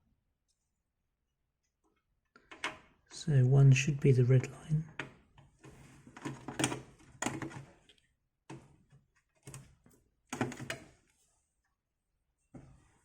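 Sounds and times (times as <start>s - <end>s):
plastic clicks and scrapes: 5.0s - 8.6s.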